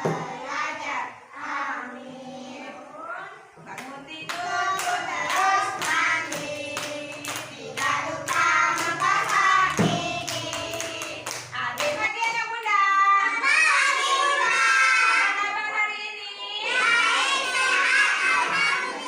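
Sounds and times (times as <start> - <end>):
children singing: 0.0 - 3.0, 4.2 - 11.4, 13.2 - 15.5, 16.3 - 19.0
rhythmic clapping: 3.7 - 12.9.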